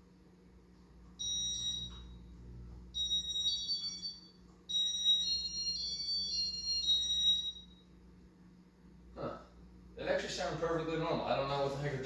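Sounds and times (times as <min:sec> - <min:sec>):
ceiling fan beeper tones: 0:01.2 - 0:08.0.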